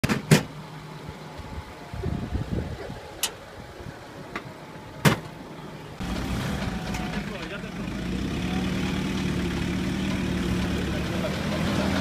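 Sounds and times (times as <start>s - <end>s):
engine idling: 3.0s - 12.0s.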